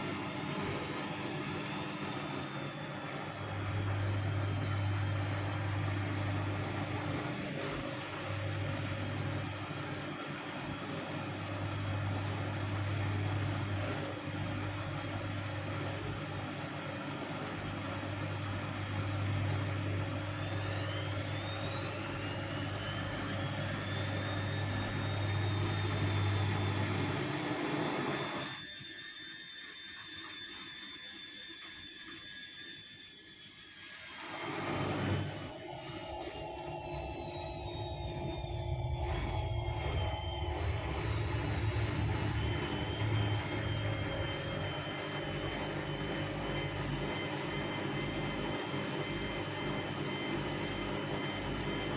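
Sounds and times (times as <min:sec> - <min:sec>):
washing machine motor whine: 0:00.0 - 0:51.9
low hum: 0:35.0 - 0:48.5.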